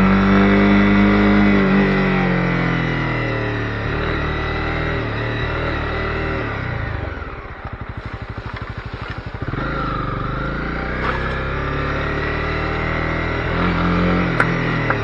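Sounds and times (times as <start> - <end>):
motorcycle engine idling: 6.6 - 11.9.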